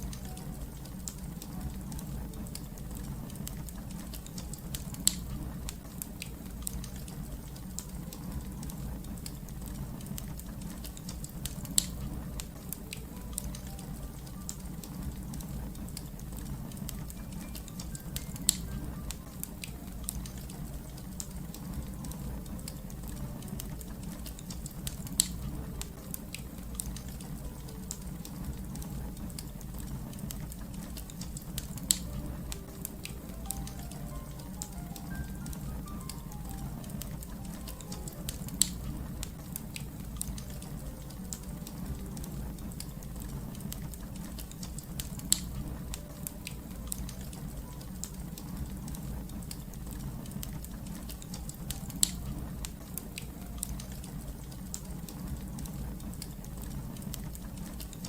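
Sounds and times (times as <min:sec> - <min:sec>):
wood fire crackling: 0:00.0 - 0:58.0
sharp pops from fire: 0:02.5 - 0:08.3, 0:10.0 - 0:47.5.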